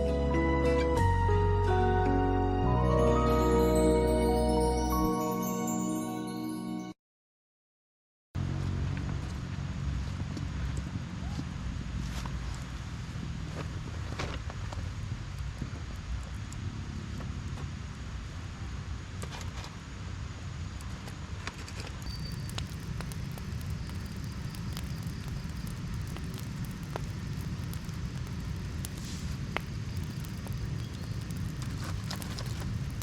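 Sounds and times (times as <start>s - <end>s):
small clicks and crackles: 20.8s - 33.0s.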